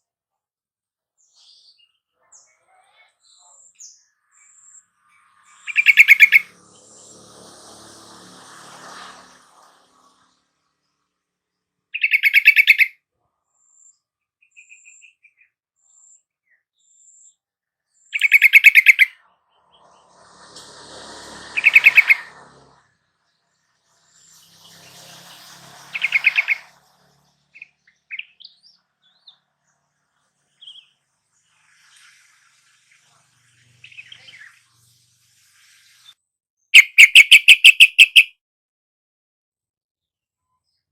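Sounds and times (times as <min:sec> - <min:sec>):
bird song phrases: 0:01.2 - 0:07.0, 0:12.0 - 0:20.2, 0:26.0 - 0:38.3, 0:40.3 - 0:40.9.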